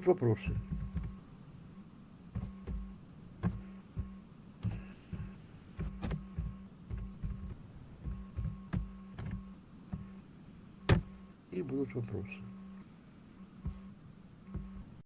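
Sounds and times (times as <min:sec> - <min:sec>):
steady low hum: 0:00.0 - 0:15.0
soft thumps and clicks: 0:00.4 - 0:01.3, 0:02.3 - 0:11.3, 0:13.6 - 0:15.0.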